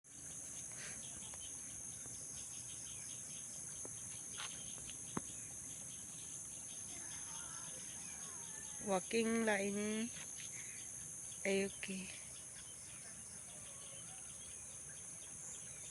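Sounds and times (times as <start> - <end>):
crickets chirping: 0.1 - 15.9
faint bird calls: 6.8 - 8.9, 10.4 - 15.9.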